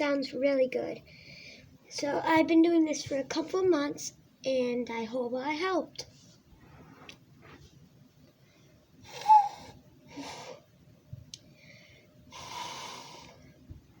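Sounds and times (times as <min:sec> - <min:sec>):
breathy blowing into cupped hands: 0:09.0 - 0:10.6, 0:12.3 - 0:13.4.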